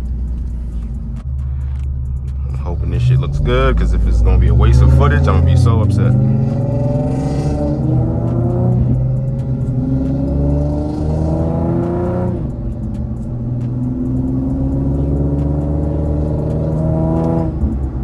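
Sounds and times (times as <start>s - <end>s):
car engine accelerating hard: 0.0s - 18.0s.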